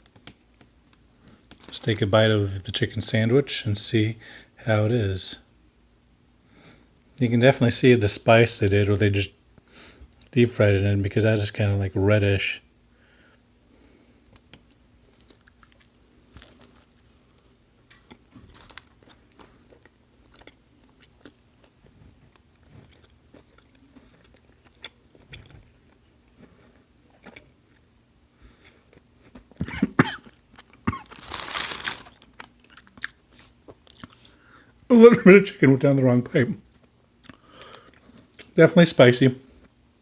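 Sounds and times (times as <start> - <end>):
person chewing crunchy food: 14.2 - 29.6, 30.2 - 34.5
person coughing: 29.6 - 31.2.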